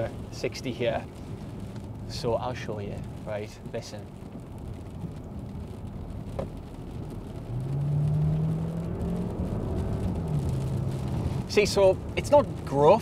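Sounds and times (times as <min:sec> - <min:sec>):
road rumble: 0:00.0 - 0:13.0
car engine accelerating: 0:04.2 - 0:13.0.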